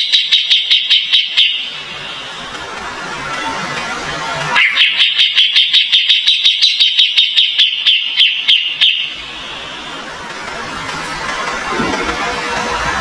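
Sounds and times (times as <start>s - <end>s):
bird sharp high repeated notes: 0.0s - 1.8s, 4.5s - 10.0s.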